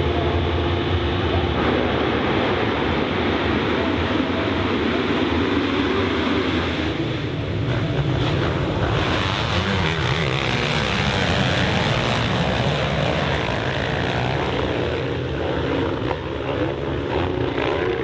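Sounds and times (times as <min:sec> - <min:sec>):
motocross bike engine revving: 0:07.6 - 0:18.0.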